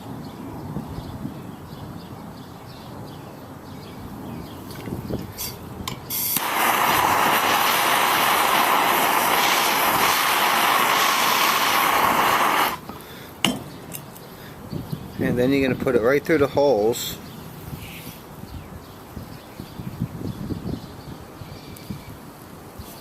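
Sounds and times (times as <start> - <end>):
torch igniter clicks: 4.7 - 14.2
gas torch flame hissing: 5.2 - 13.0.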